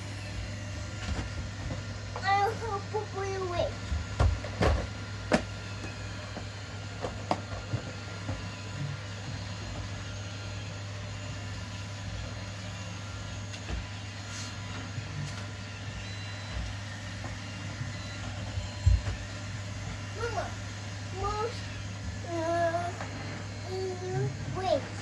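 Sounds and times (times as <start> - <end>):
robot vacuum motor hum: 0.0 - 25.0.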